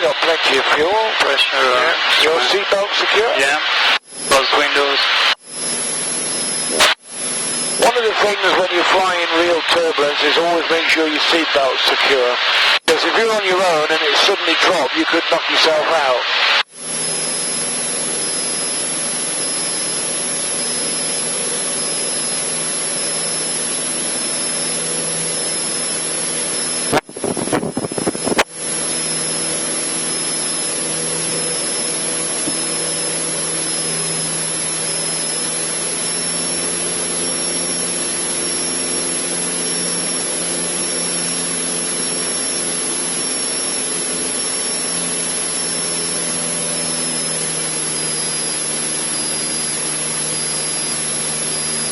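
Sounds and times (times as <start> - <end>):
light aircraft engine drone: 16.7 - 51.9.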